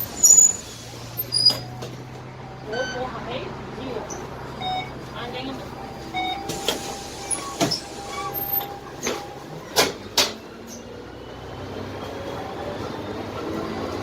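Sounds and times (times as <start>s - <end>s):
knocks and rattles inside bus: 0.0s - 2.3s, 4.0s - 11.1s
bus diesel engine running: 0.0s - 14.0s.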